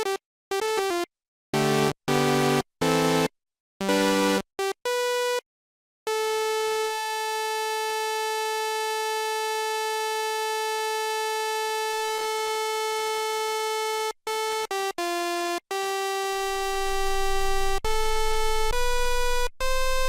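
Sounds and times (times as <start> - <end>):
buzzy synthesizer notes: 16.3 - 20.0.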